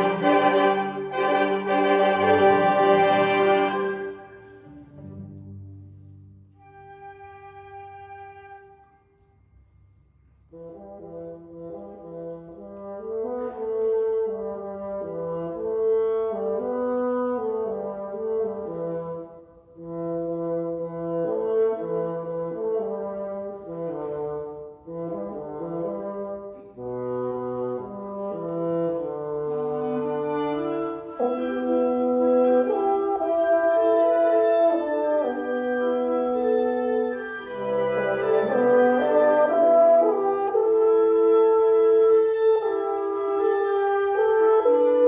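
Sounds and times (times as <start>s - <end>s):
brass sustained chords: 0.0s - 5.2s, 20.7s - 45.0s
orchestra playing: 0.0s - 5.5s, 6.6s - 8.7s, 21.1s - 45.0s.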